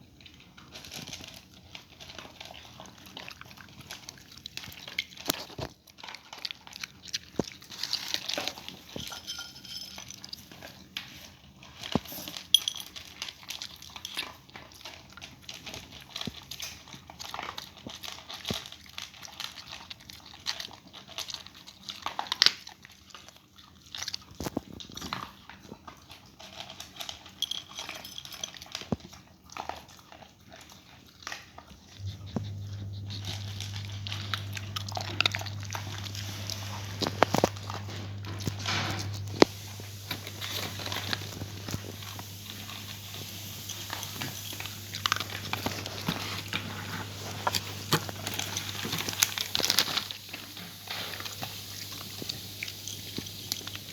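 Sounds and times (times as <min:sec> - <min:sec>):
dog crunching food: 0:00.0 - 0:09.2, 0:10.0 - 0:53.9
low hum: 0:32.0 - 0:53.9.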